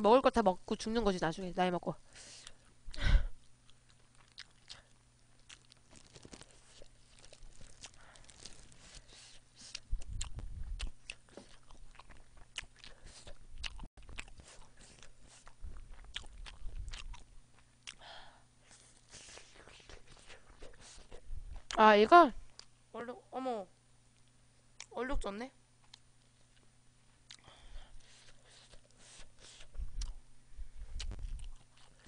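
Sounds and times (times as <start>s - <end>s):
chewing with mouth clicks: 3.4s - 18.0s, 18.7s - 21.8s, 27.3s - 30.2s, 31.0s - 32.0s.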